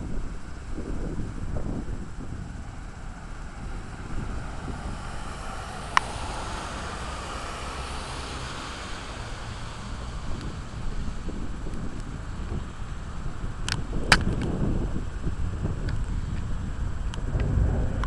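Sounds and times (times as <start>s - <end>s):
wind buffeting microphone: 0.0s - 18.0s
sharp click: 14.1s - 14.5s.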